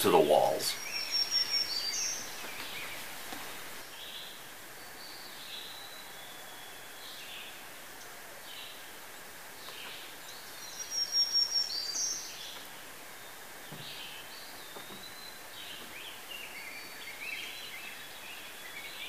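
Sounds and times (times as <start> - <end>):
birds chirping and whistling: 0.0 - 3.0, 10.4 - 12.5
steady outdoor hiss: 0.0 - 19.0.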